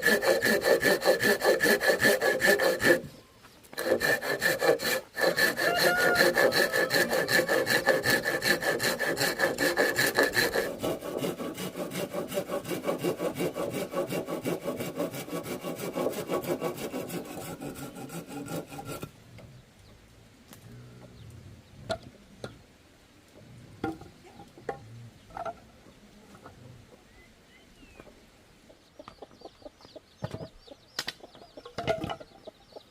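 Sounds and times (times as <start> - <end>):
hand saw cutting bamboo: 0.0 - 3.1, 3.7 - 19.1.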